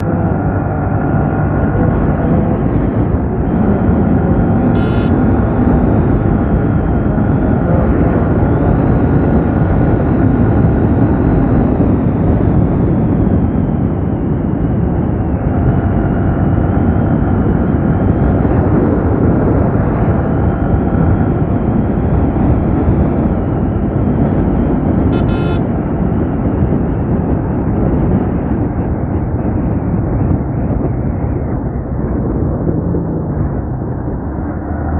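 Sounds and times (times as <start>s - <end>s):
motorcycle engine cruising: 0.0s - 13.2s, 25.2s - 25.8s
wind noise: 0.0s - 34.9s
short sharp sounds: 25.2s - 25.6s.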